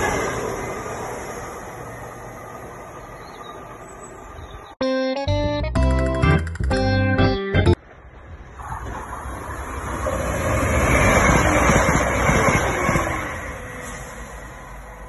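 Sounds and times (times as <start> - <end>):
diesel train passing through: 0.0 - 5.5, 7.7 - 15.0
background music: 4.8 - 7.8.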